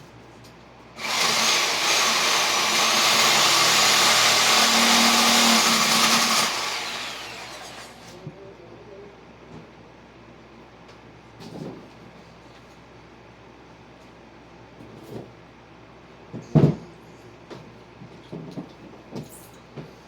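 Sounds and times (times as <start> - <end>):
reciprocating saw cutting wood: 1.0 - 8.1.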